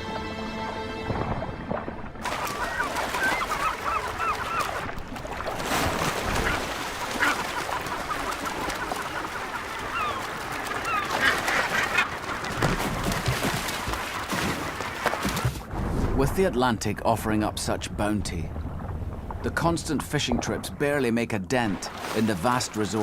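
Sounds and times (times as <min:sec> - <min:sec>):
seabirds harsh calls: 0:02.2 - 0:05.0, 0:06.0 - 0:15.4.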